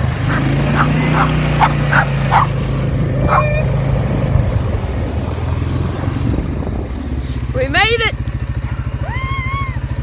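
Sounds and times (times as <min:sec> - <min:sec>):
four-wheeler engine running: 0:00.0 - 0:10.0
short high yelps: 0:00.3 - 0:02.5, 0:03.3 - 0:03.8.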